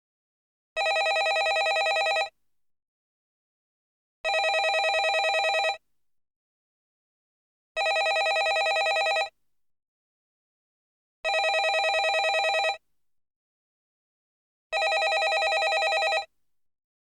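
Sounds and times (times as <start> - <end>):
telephone ringing: 0.8 - 2.3, 4.3 - 5.8, 7.8 - 9.3, 11.3 - 12.8, 14.8 - 16.3.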